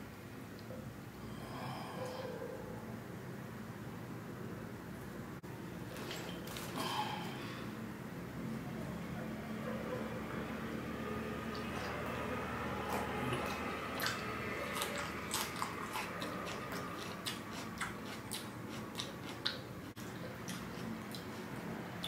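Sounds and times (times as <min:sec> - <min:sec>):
mouth smacking while chewing: 0:11.5 - 0:21.6.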